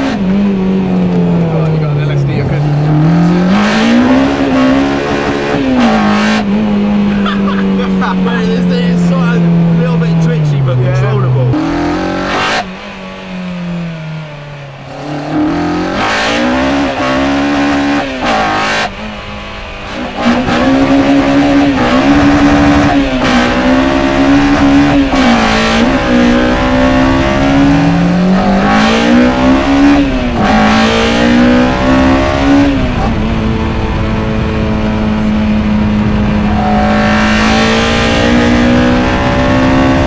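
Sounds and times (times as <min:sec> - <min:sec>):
car engine revving: 0:00.0 - 0:40.0.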